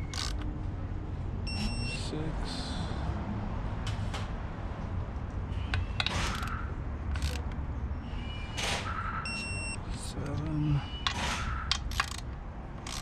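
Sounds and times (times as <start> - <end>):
hand tools clicking on bolts: 0.0 - 0.4, 5.8 - 7.6, 9.9 - 13.0.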